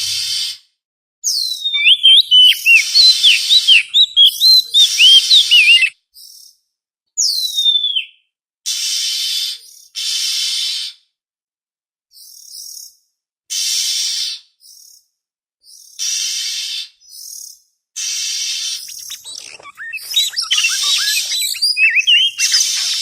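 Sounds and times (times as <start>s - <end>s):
bird whistling song: 1.3s - 5.9s, 7.2s - 8.2s, 18.6s - 23.0s
harsh rasping bird notes: 1.8s - 5.9s, 18.8s - 23.0s.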